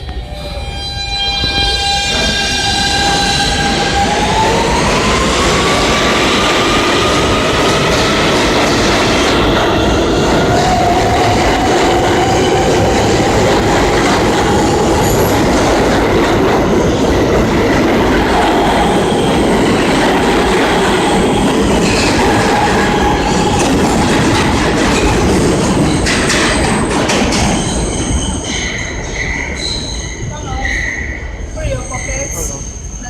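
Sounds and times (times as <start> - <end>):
subway train rumble: 0.0 - 33.0
wheel squeal: 26.0 - 33.0.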